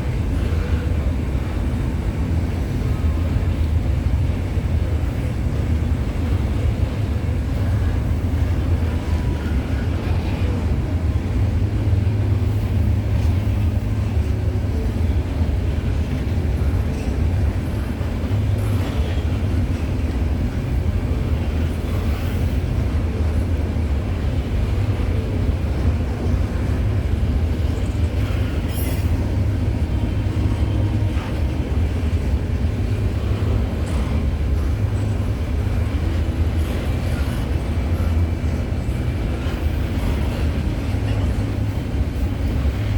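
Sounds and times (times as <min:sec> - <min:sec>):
steel wheels rumbling on rail: 0:00.0 - 0:42.9.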